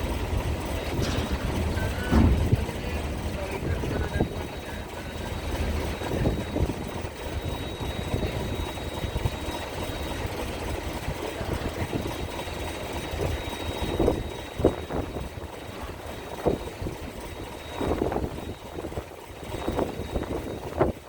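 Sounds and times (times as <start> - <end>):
ship engines idling: 0.0 - 21.0
wind buffeting microphone: 0.2 - 21.0
thumps: 0.8 - 3.2.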